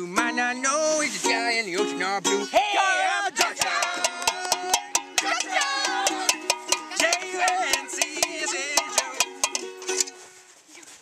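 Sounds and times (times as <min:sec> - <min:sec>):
person singing: 0:00.0 - 0:09.4
strummed ukulele: 0:00.0 - 0:10.5
sharp percussive hits: 0:03.4 - 0:10.1.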